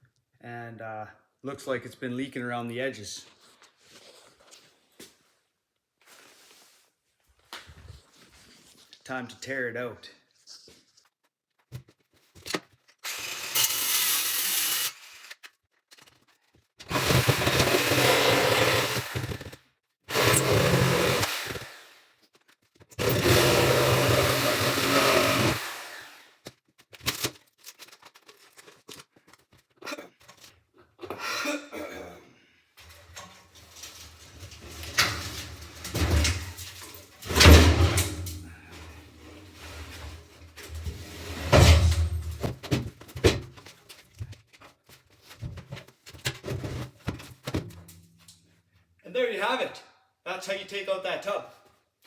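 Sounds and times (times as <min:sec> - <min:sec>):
power tool running: 0:16.9 - 0:19.5, 0:20.1 - 0:22.0, 0:23.0 - 0:26.2, 0:34.6 - 0:38.6
knocks thumps and scrapes: 0:32.8 - 0:43.6.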